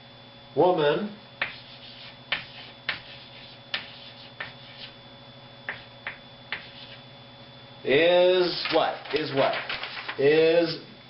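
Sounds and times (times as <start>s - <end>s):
faint electrical hum: 0.0s - 11.0s
writing taps and strokes on board: 1.4s - 4.9s, 5.7s - 7.0s.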